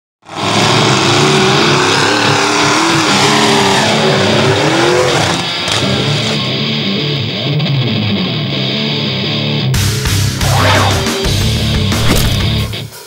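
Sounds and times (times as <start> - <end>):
tires spinning: 0.2 - 6.8
truck engine revving hard: 0.2 - 6.9.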